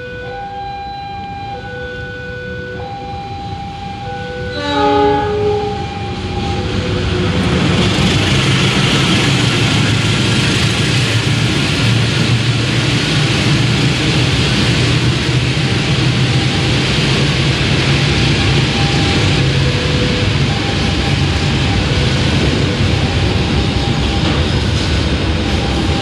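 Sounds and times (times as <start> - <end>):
locomotive engine drone: 0.0 - 26.0
train wheels rumbling on rails: 2.0 - 26.0
train horn: 3.5 - 6.6.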